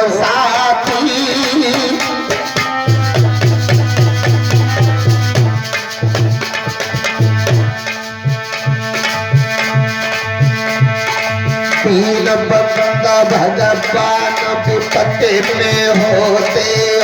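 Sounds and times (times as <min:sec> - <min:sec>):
hand drum quick strokes: 0:02.3 - 0:12.0.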